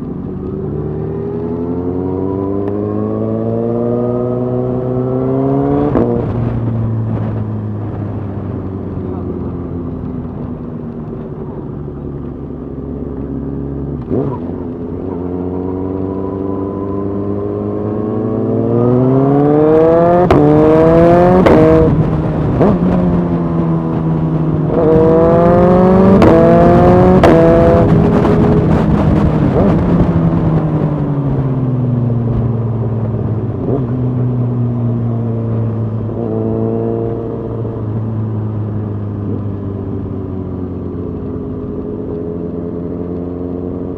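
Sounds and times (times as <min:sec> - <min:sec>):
motorcycle engine accelerating: 0:00.0 - 0:43.9
wind rush: 0:18.2 - 0:40.4.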